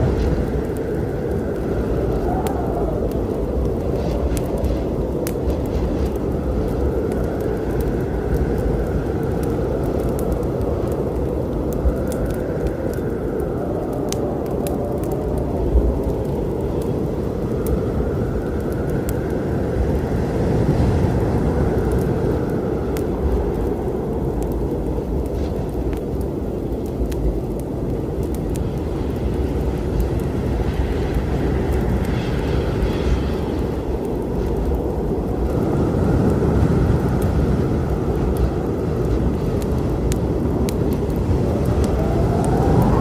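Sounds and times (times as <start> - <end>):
storm rumble: 0.0 - 43.0
wood fire crackling: 0.0 - 43.0.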